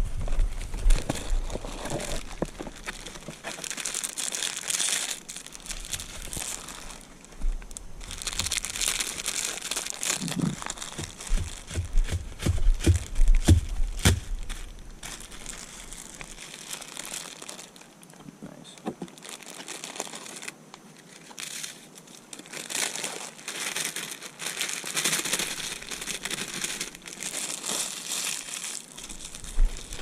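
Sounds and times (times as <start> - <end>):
plastic packaging crinkling: 0.0 - 18.2, 19.0 - 30.0.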